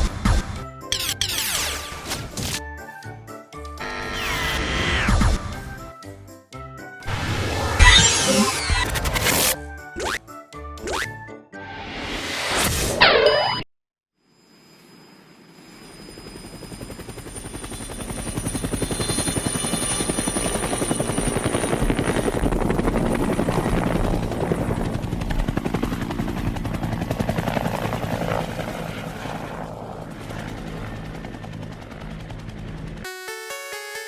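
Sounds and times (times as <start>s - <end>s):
high whine: 3.8s - 5.2s, 7.1s - 9.6s
helicopter rotor blades chopping: 7.1s - 10.2s, 15.5s - 33.1s.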